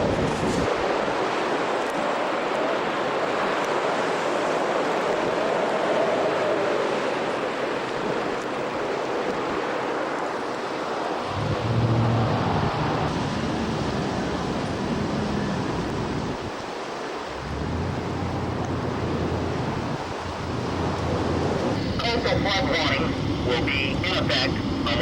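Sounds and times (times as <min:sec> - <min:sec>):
wind on microphone: 0:00.0 - 0:23.6
heavy surf breaking: 0:00.0 - 0:25.0.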